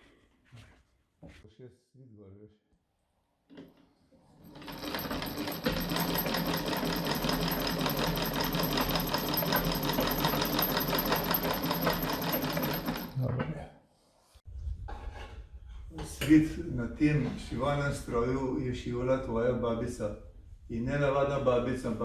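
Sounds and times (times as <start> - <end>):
sewing machine clattering: 3.5 - 13.3.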